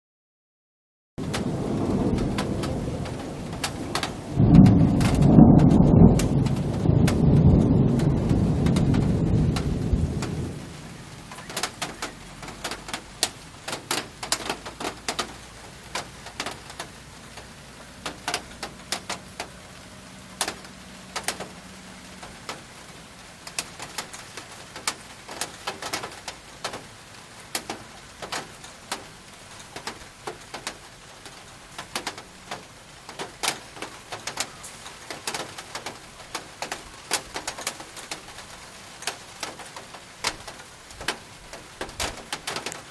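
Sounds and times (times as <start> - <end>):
thunder rumbling: 1.2 - 22.8
rain: 1.2 - 42.9
raindrops tapping on a surface: 1.2 - 42.9.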